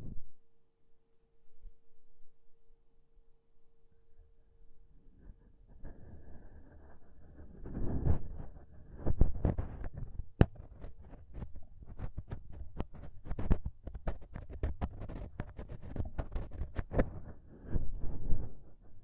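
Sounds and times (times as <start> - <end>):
ear pick scratching in ear: 5.7 - 19.0.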